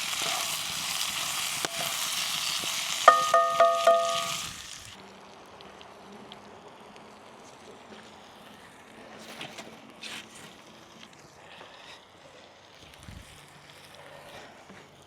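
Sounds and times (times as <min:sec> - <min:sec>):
food sizzling in a pan: 0:00.0 - 0:05.2
faint wind: 0:00.0 - 0:15.0.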